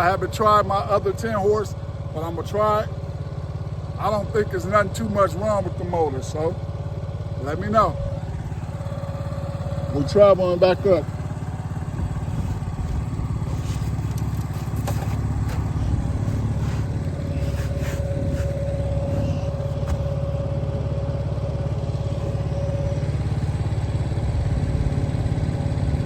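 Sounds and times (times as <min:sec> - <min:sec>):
outboard motor running: 0:00.0 - 0:26.0
high whine: 0:07.4 - 0:26.0.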